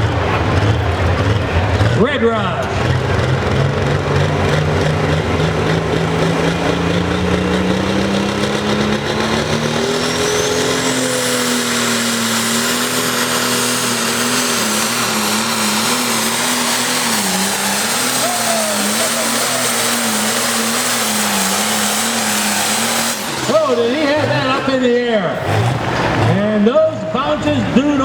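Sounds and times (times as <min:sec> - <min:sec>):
tractor diesel engine at full power: 0:00.0 - 0:28.0
turbo whine: 0:02.6 - 0:24.8.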